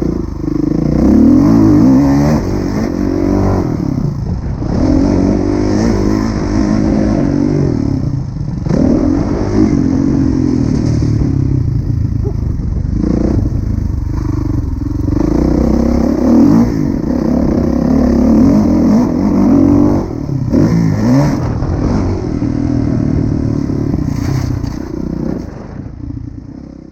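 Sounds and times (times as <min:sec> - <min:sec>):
motocross bike engine revving: 0:00.0 - 0:26.9.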